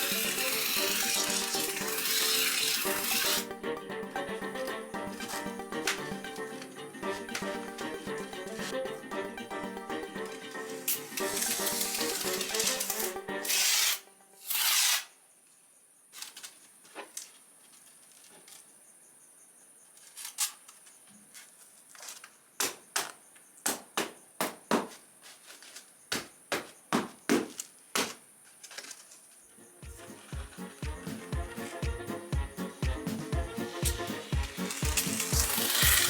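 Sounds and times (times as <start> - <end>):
short hissing bursts: 0.0 - 3.5, 10.7 - 15.1, 32.6 - 36.0
background music: 0.0 - 14.8, 29.6 - 36.0.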